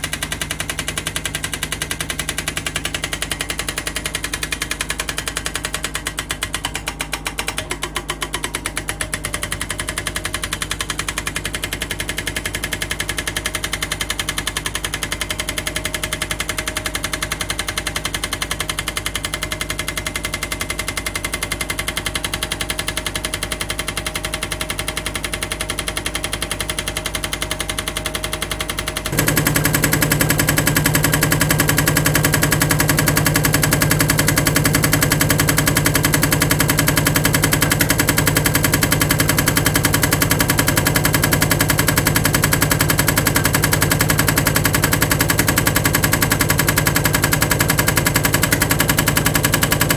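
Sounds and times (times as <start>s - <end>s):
hydraulic breaker hammer pounding rock: 0.0s - 49.9s
excavator engine running: 28.9s - 49.9s.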